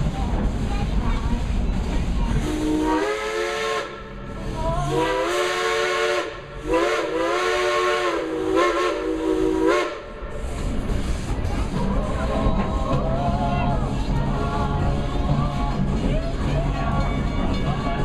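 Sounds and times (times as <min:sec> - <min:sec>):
train noise: 0:00.0 - 0:18.0
steam locomotive whistle: 0:02.4 - 0:10.4.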